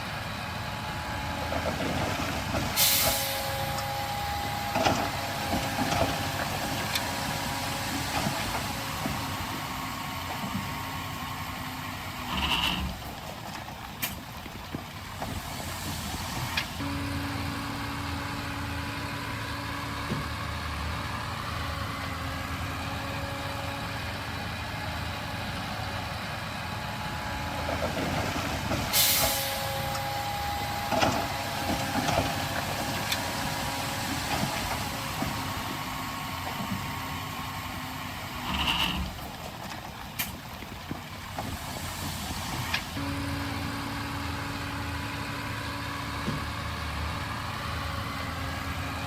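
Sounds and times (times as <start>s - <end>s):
diesel machinery running: 0.0s - 49.0s
loud hiss of air: 2.8s - 3.6s, 28.9s - 29.8s.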